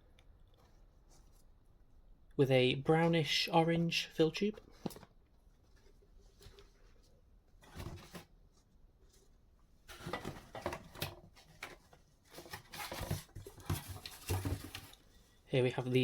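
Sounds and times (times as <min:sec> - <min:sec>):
packaging rustling: 0:09.9 - 0:15.2.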